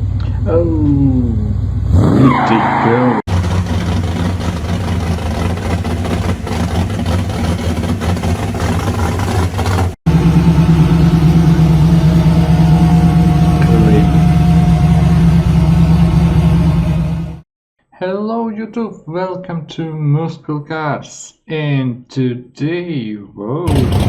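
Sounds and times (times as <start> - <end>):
muscle car engines rumbling: 0.0 - 17.4, 23.7 - 24.0
gliding rising and falling pitches: 10.1 - 17.4.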